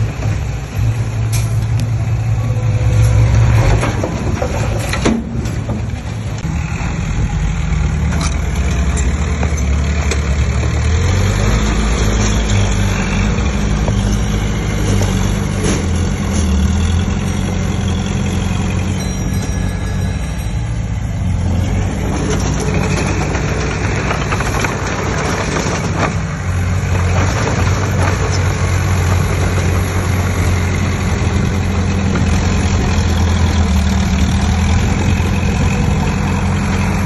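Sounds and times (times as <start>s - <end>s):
heavy diesel engines running: 0.0s - 37.0s.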